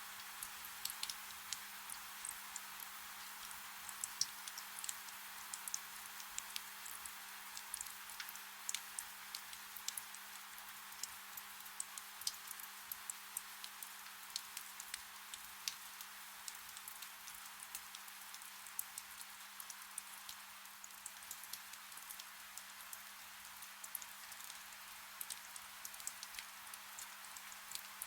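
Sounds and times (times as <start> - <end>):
soft rain hissing: 0.0 - 28.0
raindrops ticking: 0.2 - 15.8, 16.5 - 23.0, 25.2 - 28.0.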